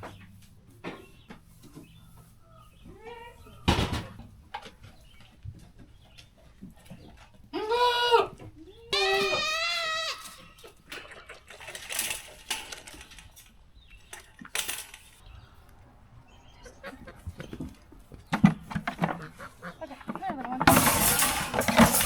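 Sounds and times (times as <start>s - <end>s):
goat bleating: 2.9s - 3.5s, 7.5s - 10.7s
rustling: 8.3s - 15.8s, 17.1s - 22.0s.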